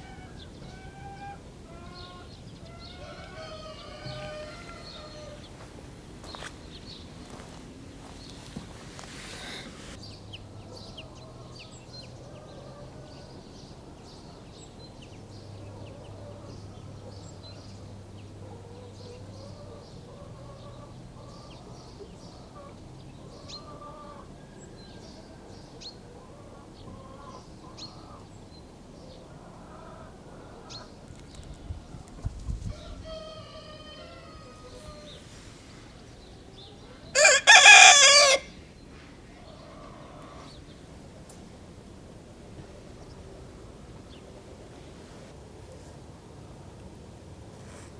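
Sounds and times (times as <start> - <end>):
rooster crowing: 0.0 - 5.7, 32.7 - 35.3, 37.1 - 38.6
chickens clucking: 0.0 - 10.0, 39.3 - 41.5
songbirds chirping: 0.0 - 47.9.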